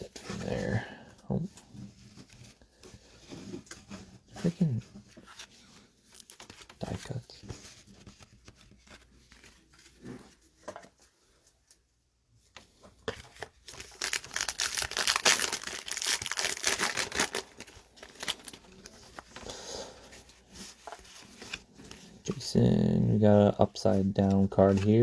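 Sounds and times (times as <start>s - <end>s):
plastic wrapper crinkling: 6.1s - 7.2s, 13.2s - 19.6s.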